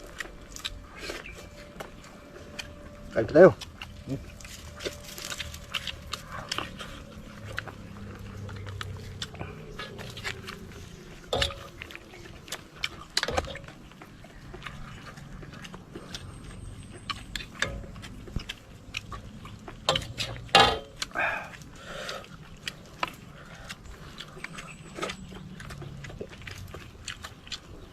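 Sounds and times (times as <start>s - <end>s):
people chewing and biting: 0.0s - 27.9s
tableware clicks and knocks: 19.9s - 21.0s.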